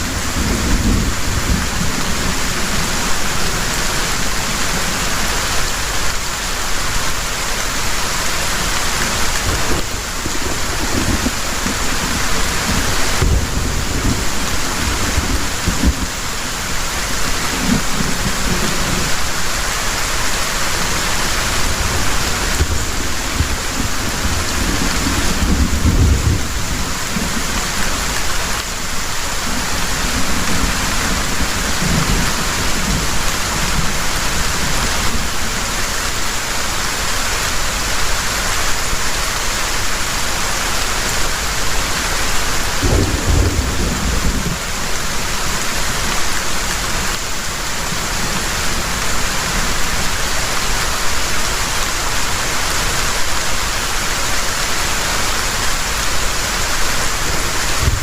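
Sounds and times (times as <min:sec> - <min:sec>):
low thunder rumbling: 0:00.0 - 0:05.1, 0:09.2 - 0:19.3, 0:20.8 - 0:35.5, 0:42.6 - 0:47.0, 0:57.3 - 0:58.0
heavy rain falling: 0:00.0 - 0:58.0.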